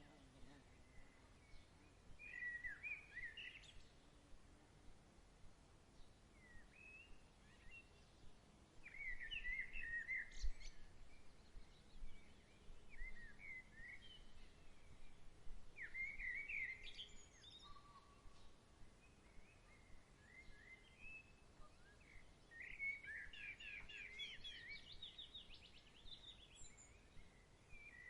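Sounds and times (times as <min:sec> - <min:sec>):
faint background hiss: 0:00.0 - 0:28.0
songbirds chirping: 0:00.0 - 0:28.0.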